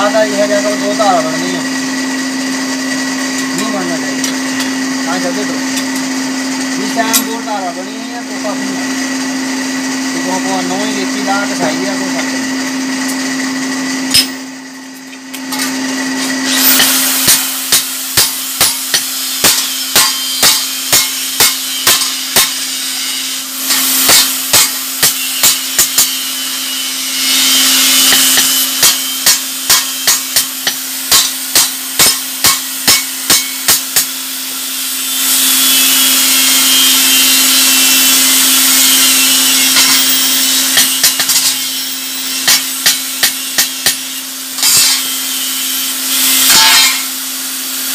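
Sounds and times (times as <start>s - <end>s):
furnace blower humming: 0.0s - 47.9s
hammer striking blade on anvil: 7.0s - 7.4s, 14.0s - 14.4s, 15.3s - 34.2s, 38.8s - 45.4s, 46.1s - 47.2s
rasping hiss: 16.5s - 26.2s.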